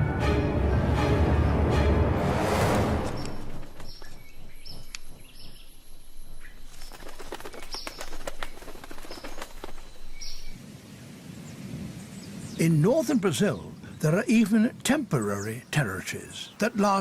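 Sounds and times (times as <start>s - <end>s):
orchestral music: 0.0s - 3.8s
hummingbirds chirping: 3.2s - 10.6s, 11.4s - 17.0s.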